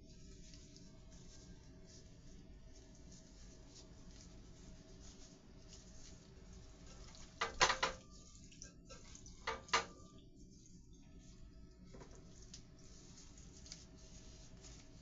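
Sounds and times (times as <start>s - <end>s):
dishes and utensils clinking: 6.9s - 10.2s.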